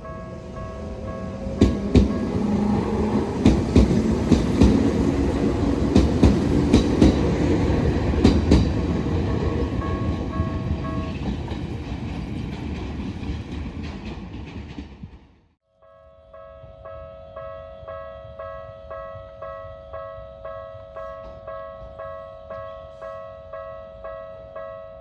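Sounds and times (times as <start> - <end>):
crossing warning bell: 0.0 - 11.9, 15.8 - 25.0
train passing: 0.0 - 15.6
wheels clacking over rail joints: 0.3 - 15.4.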